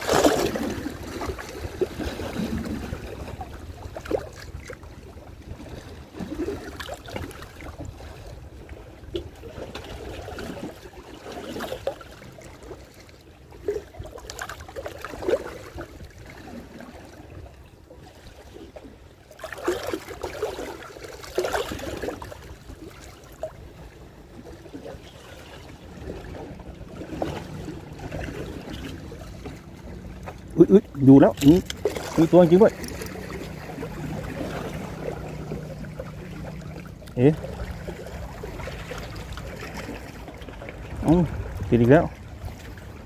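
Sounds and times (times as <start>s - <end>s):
seawater lapping and splashing: 0.0s - 43.0s
steady low rumble: 25.7s - 43.0s.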